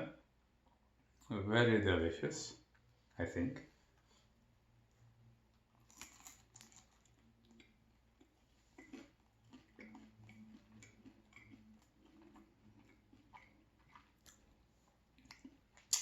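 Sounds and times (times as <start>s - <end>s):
person chewing pizza: 5.5s - 16.0s.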